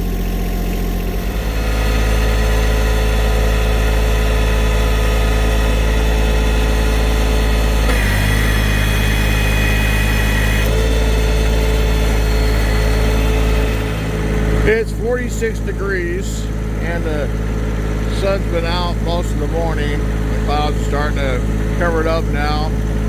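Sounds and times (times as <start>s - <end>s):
high-pitched whine: 0.0s - 17.3s
tractor engine running: 0.0s - 23.0s.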